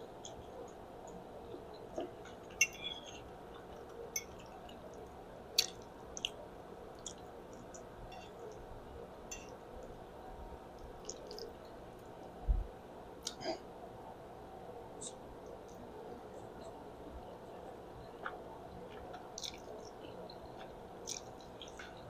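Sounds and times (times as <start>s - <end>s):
faint background hum: 0.0s - 22.0s
person chewing with lip-smacks: 18.2s - 22.0s.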